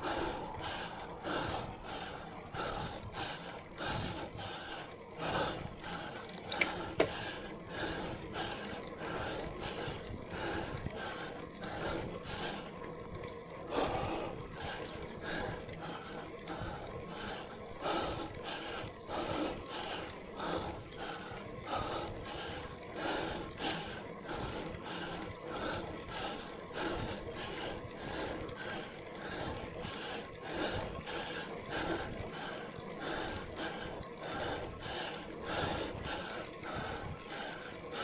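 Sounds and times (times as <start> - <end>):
cyclist breathing hard: 0.0 - 38.0.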